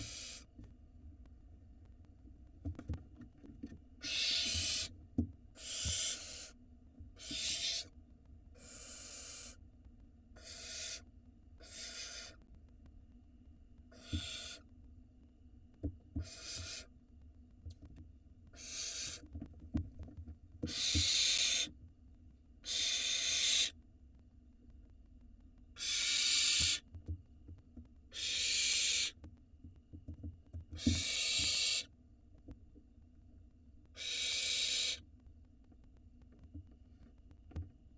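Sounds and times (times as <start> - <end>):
owl nestlings hissing calls: 0.0 - 0.5, 4.0 - 4.9, 5.6 - 6.6, 7.2 - 7.9, 8.6 - 9.6, 10.4 - 12.4, 13.9 - 14.6, 16.2 - 16.9, 18.6 - 19.2, 20.7 - 21.7, 22.6 - 23.8, 25.8 - 26.8, 28.1 - 29.2, 30.8 - 31.9, 34.0 - 35.0.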